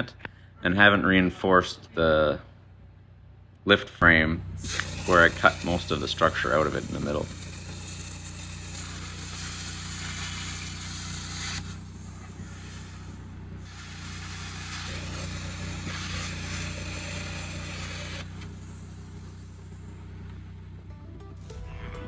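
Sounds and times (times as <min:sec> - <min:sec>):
steady low hum: 0:02.3 - 0:22.0
plasma cutter hissing: 0:04.6 - 0:20.2.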